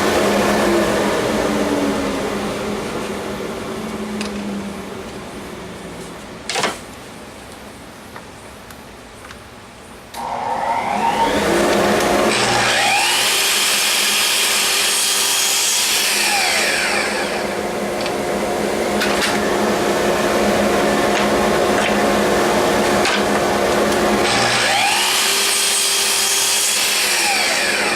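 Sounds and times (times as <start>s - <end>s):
electric power tool running: 10.2s - 27.9s
steady motor hum: 10.2s - 27.9s.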